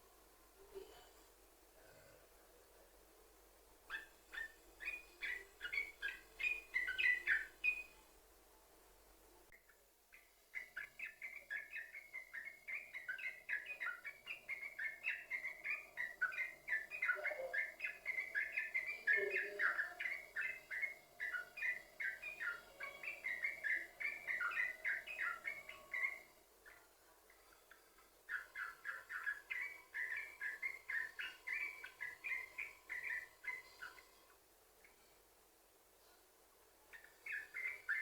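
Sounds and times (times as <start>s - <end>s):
bird singing chattering notes: 3.9s - 7.9s, 10.5s - 26.8s, 28.3s - 34.0s, 36.9s - 38.0s.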